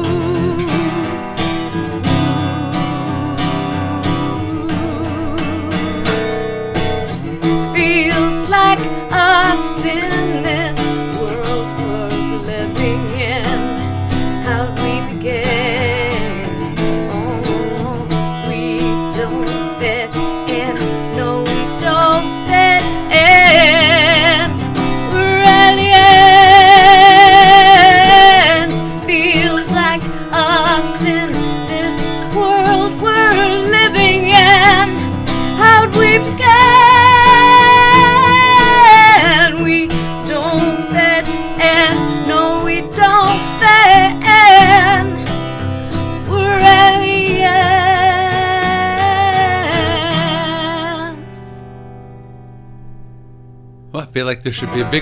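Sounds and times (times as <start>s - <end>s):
person singing with vibrato: 0.0s - 6.4s, 7.6s - 51.6s
acoustic guitar: 0.0s - 55.0s.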